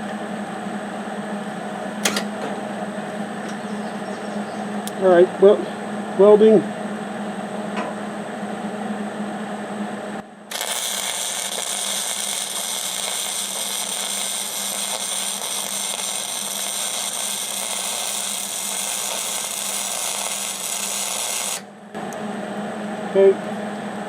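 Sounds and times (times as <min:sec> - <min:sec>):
welder arc hissing: 0:10.5 - 0:21.7.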